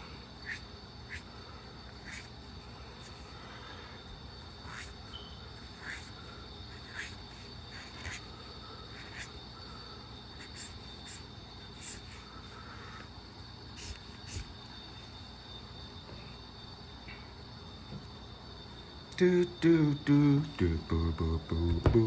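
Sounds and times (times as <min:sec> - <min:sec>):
marker scratching on paper: 0:00.4 - 0:01.3, 0:02.0 - 0:03.4, 0:04.6 - 0:09.4, 0:10.3 - 0:12.3, 0:13.8 - 0:14.6
steady high-pitched tone: 0:19.2 - 0:22.0.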